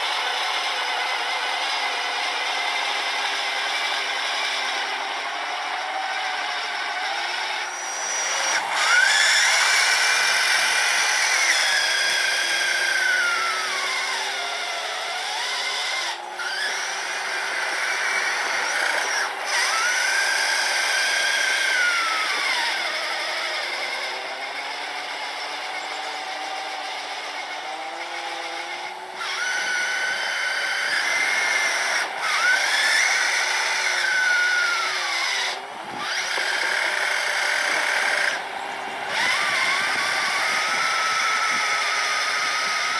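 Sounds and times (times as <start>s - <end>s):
toy truck electric motors whining: 0.0s - 42.9s.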